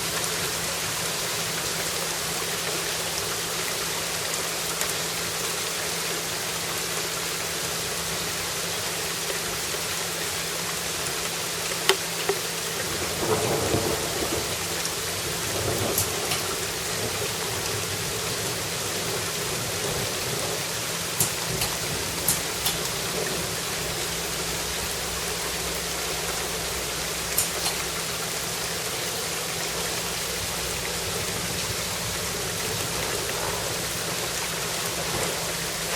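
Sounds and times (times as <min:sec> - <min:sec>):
steady rain: 0:00.0 - 0:35.9
sharp drip clicks: 0:10.1 - 0:12.9, 0:14.8 - 0:17.8, 0:21.1 - 0:23.4, 0:25.7 - 0:31.8
thunder rumbling: 0:12.8 - 0:20.6.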